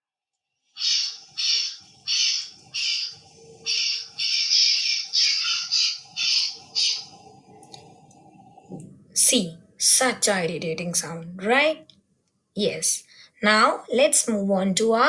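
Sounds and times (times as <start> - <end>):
crow cawing: 0.8 - 7.0.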